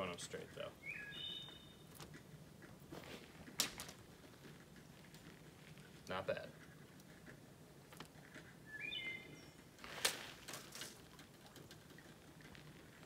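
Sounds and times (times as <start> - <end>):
bird chirp: 0.5 - 2.0, 8.4 - 9.7.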